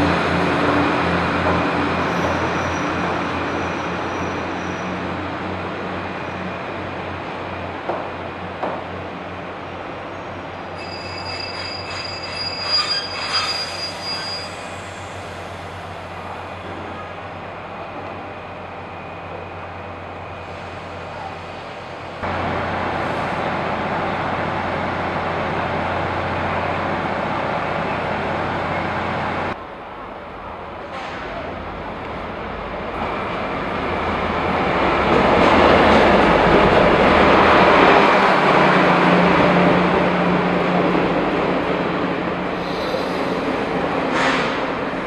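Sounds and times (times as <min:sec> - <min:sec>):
loud rail noise: 0:00.0 - 0:45.0
train wheels squealing: 0:01.8 - 0:05.2, 0:10.1 - 0:15.7, 0:42.6 - 0:43.5.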